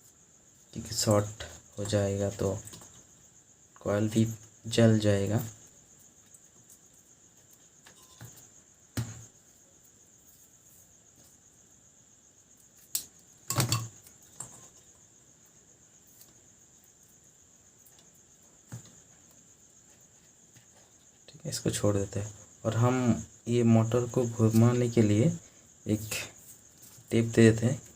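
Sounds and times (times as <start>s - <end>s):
cricket trill: 0.0s - 27.9s
clicks and knocks handling wires: 12.7s - 14.8s.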